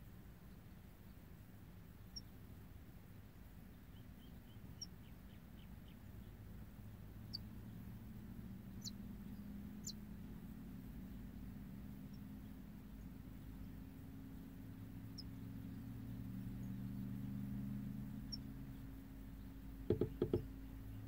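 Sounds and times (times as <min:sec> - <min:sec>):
low steady hum: 0:00.0 - 0:21.0
faint bird chirps: 0:02.0 - 0:02.5, 0:03.7 - 0:06.5, 0:08.6 - 0:10.1, 0:11.5 - 0:21.0.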